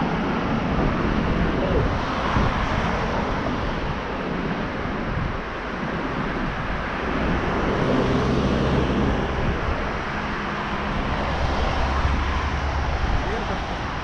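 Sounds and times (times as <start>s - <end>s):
road and wind noise: 0.0s - 14.0s
vehicle passing: 7.0s - 14.0s.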